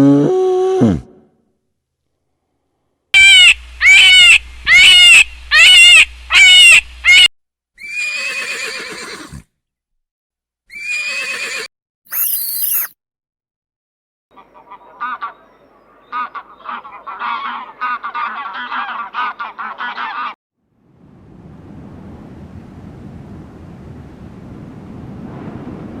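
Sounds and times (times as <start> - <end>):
animal high-pitched cries: 3.2 - 9.4, 10.7 - 12.9
animal squeal: 10.7 - 12.9.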